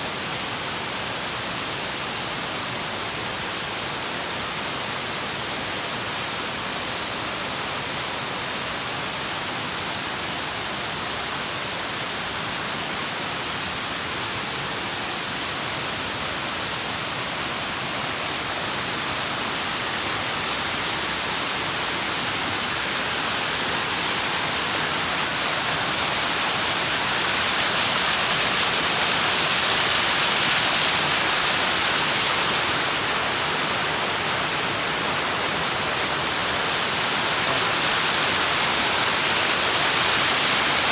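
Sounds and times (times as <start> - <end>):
waterfall rushing: 14.4 - 40.9.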